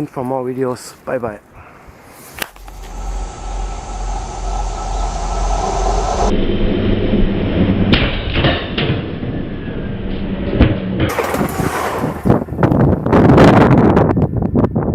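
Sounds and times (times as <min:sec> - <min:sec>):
wind buffeting microphone: 0:01.6 - 0:08.2, 0:10.6 - 0:14.9
low hum: 0:01.6 - 0:13.1.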